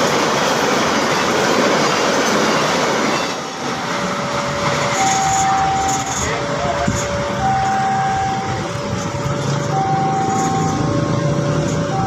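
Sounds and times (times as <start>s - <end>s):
low rumble of train and traffic: 0.0s - 12.0s
two-tone crossing alarm: 3.6s - 12.0s.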